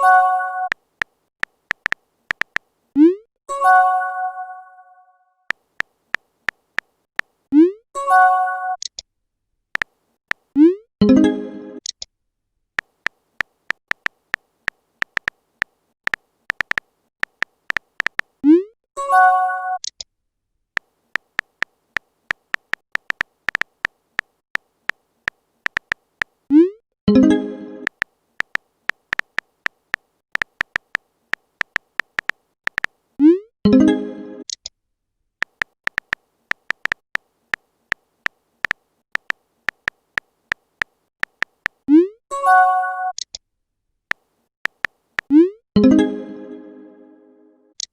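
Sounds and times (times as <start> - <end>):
phone keyboard clicks: 0.7 - 2.7, 9.8 - 10.4, 12.8 - 18.3, 20.8 - 26.3, 27.8 - 33.0, 35.4 - 41.8, 44.1 - 45.4.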